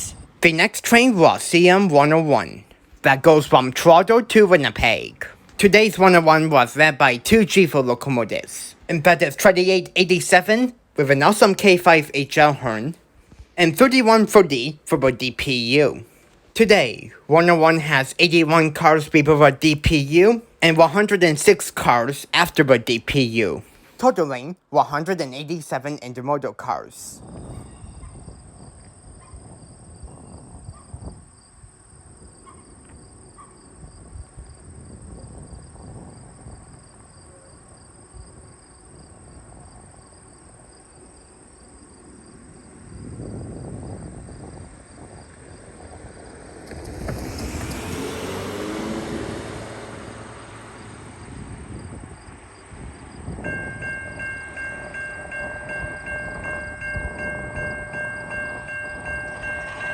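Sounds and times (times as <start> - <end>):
diesel locomotive rumble: 43.0 - 59.9.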